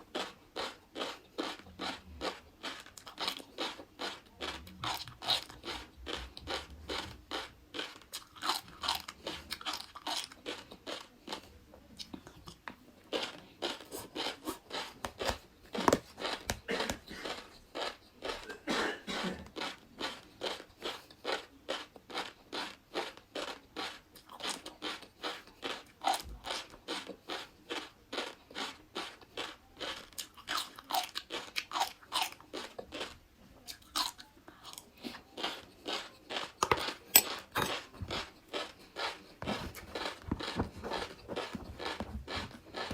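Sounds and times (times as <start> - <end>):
chewing crunchy fish roe: 0.0 - 42.9.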